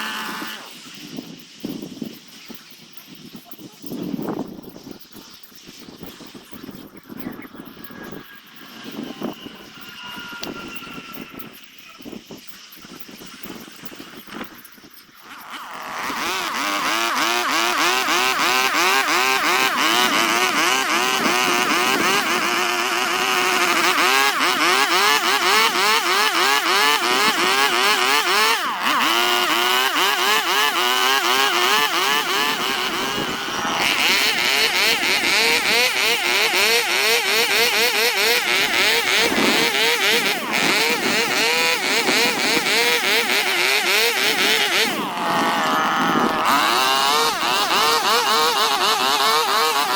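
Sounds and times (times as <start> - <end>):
rotary power tool carving wood: 0.0 - 1.1, 7.8 - 12.3, 15.2 - 49.9.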